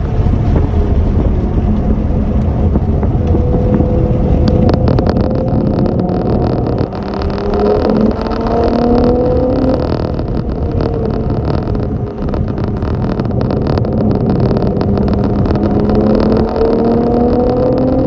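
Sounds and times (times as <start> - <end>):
heavy rushing noise: 0.0 - 18.0
vehicle engine accelerating: 0.0 - 18.0.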